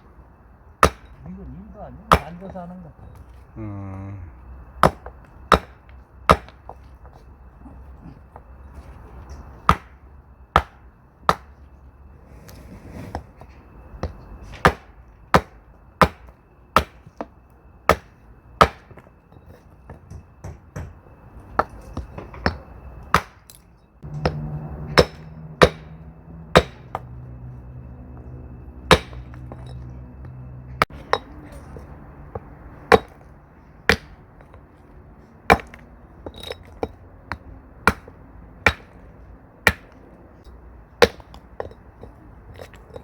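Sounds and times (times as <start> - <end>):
steady low hum: 0.0 - 43.0
axe striking wood: 0.8 - 1.2, 4.8 - 6.6, 9.7 - 10.0, 10.6 - 11.5, 14.6 - 17.0, 17.9 - 19.0, 22.4 - 23.5, 25.0 - 25.9, 26.6 - 27.0, 28.9 - 29.4, 39.6 - 39.9.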